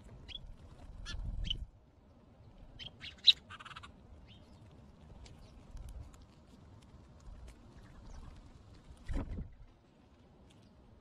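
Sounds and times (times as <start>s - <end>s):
birds chirping: 0.2s - 1.7s, 2.4s - 4.7s.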